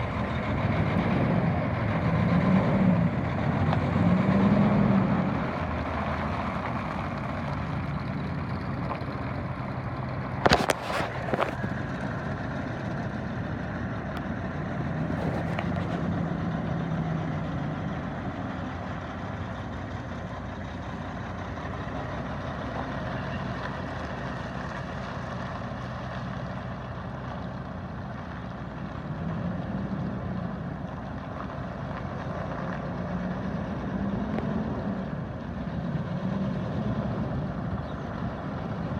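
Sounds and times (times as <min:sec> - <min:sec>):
diesel truck engine idling: 0:00.0 - 0:38.9.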